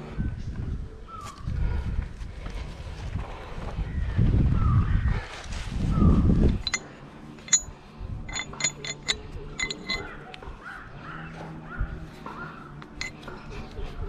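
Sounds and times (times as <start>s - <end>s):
sharp metallic clinks: 6.5s - 10.5s, 12.9s - 13.5s.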